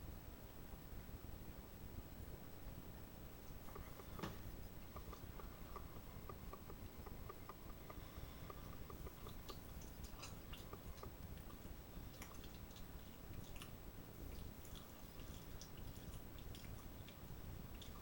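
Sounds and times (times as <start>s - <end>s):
low room hum: 0.0s - 18.0s
person chewing food: 3.6s - 18.0s.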